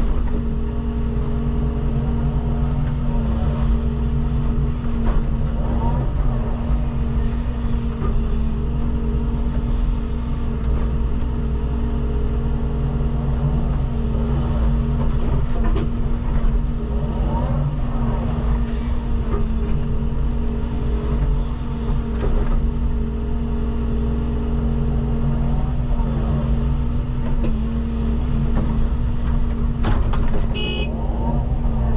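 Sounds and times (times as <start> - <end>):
excavator diesel engine working: 0.0 - 31.9.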